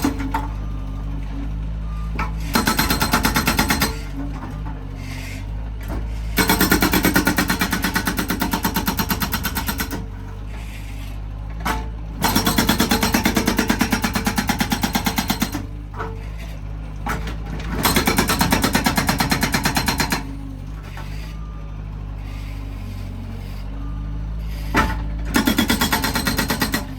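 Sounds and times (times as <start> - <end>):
diesel engine running: 0.0 - 26.9
hydraulic breaker hammering: 2.5 - 4.1, 6.4 - 10.0, 11.7 - 15.7, 17.1 - 20.3, 24.7 - 26.9.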